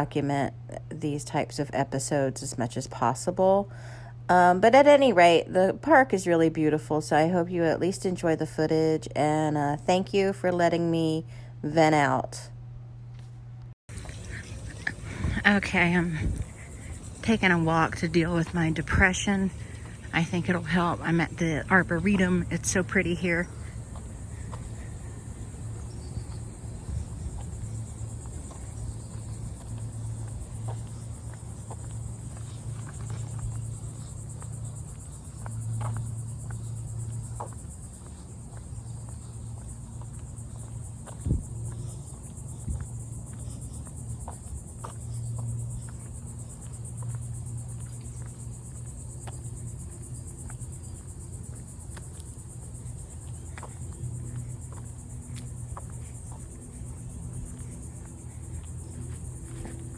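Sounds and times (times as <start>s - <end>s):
crickets chirping: 13.9s - 59.9s.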